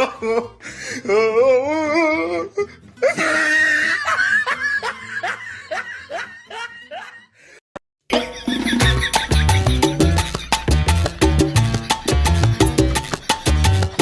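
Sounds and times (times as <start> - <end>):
person laughing hard: 0.0 - 1.4, 2.6 - 7.6, 8.2 - 10.9
person shrieking: 1.0 - 4.2.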